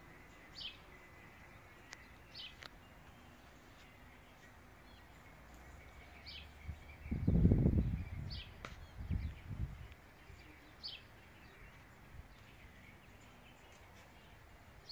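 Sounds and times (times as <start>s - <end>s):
bird chirping: 0.0s - 14.9s
faint outdoor background noise: 0.0s - 14.9s
low rumble on microphone: 6.5s - 10.0s.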